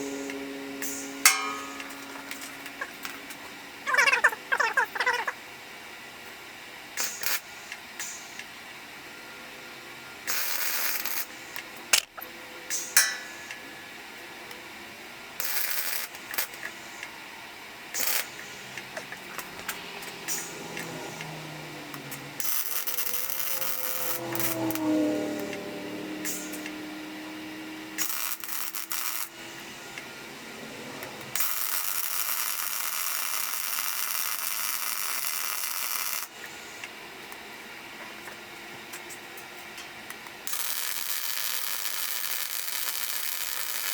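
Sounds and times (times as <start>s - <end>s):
wavering pitched sound: 0.0s - 5.4s, 19.2s - 28.1s
clicks: 11.9s - 12.3s.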